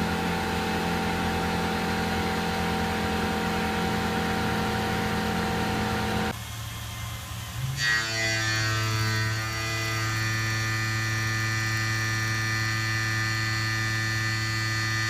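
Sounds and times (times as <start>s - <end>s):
mill machine cutting metal: 7.6s - 15.0s.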